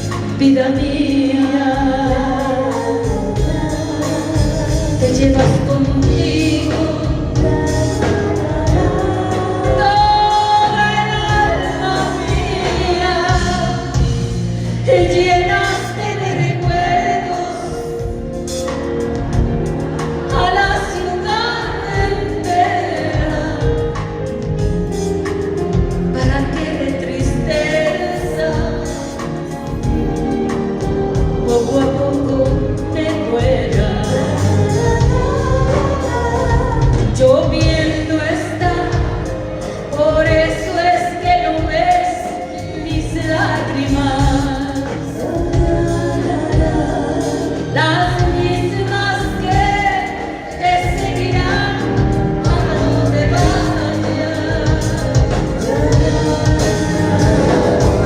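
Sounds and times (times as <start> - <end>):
live band playing a ballad: 0.0 - 58.0
singing voices: 0.0 - 58.0
steady bass beat: 54.8 - 58.0.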